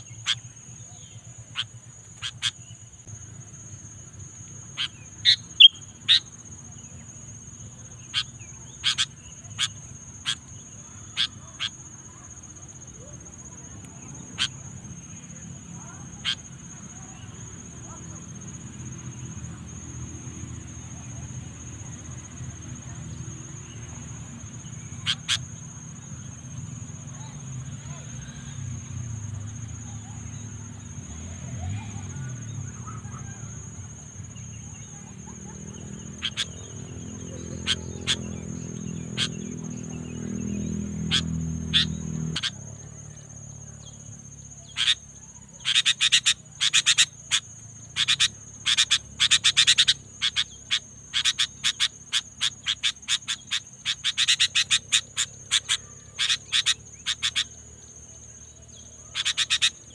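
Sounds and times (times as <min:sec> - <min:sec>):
sharp clicking chirps: 0:00.0 - 0:03.2, 0:12.9 - 0:14.8, 0:24.7 - 0:25.6, 0:30.2 - 0:43.2, 0:44.6 - 0:59.9
high-pitched insect drone: 0:00.0 - 0:59.9.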